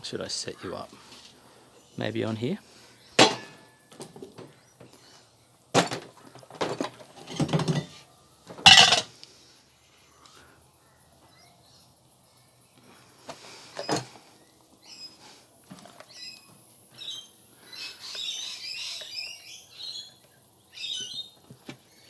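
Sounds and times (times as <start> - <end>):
hard objects knocking and clattering: 5.8 - 7.9, 8.5 - 9.1.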